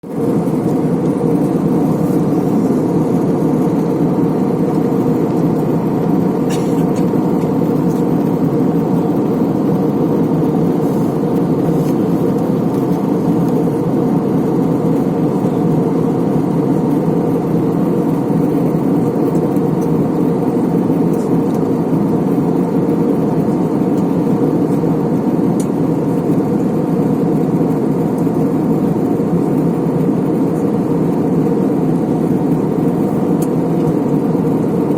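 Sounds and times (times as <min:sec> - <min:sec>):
airliner cabin drone: 0:00.0 - 0:34.9.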